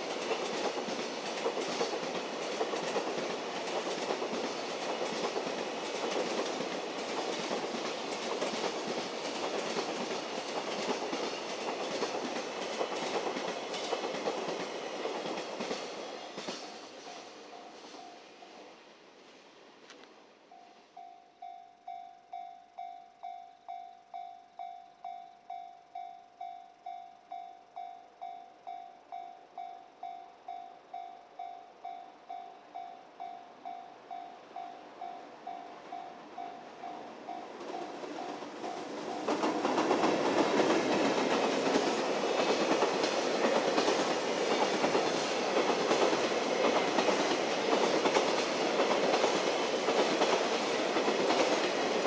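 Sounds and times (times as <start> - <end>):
train wheels clickety-clack: 0.0 - 18.4, 34.8 - 52.0
freight train passing: 0.0 - 52.0
level crossing warning bell: 20.5 - 39.5.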